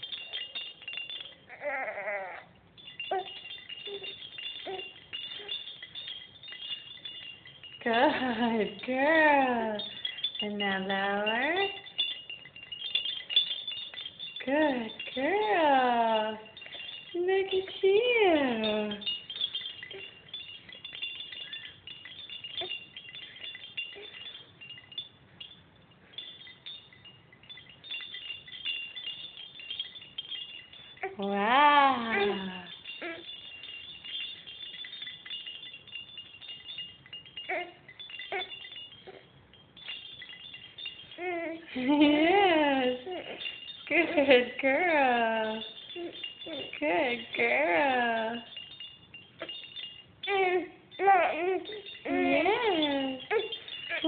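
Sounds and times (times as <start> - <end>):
baby rattle jingling: 0.0 - 54.0
infant whimpering: 1.5 - 2.5.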